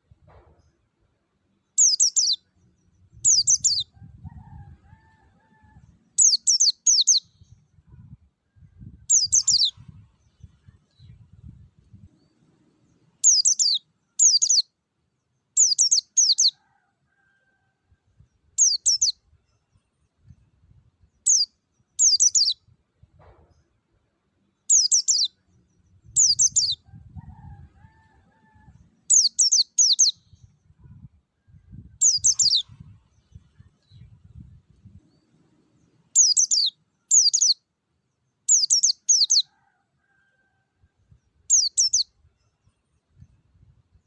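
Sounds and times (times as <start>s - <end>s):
white-eye bird singing: 1.8s - 3.9s, 6.2s - 7.4s, 9.1s - 10.6s, 13.2s - 14.7s, 15.6s - 16.6s, 18.6s - 19.2s, 21.2s - 22.6s, 24.7s - 26.8s, 29.1s - 30.4s, 32.0s - 32.8s, 35.1s - 37.6s, 38.5s - 39.5s, 41.5s - 42.1s.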